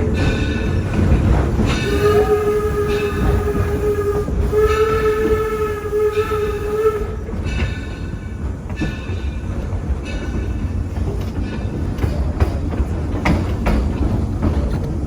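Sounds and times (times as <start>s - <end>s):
train running on rails: 0.0s - 15.0s
steam locomotive whistle blasts: 1.7s - 7.5s.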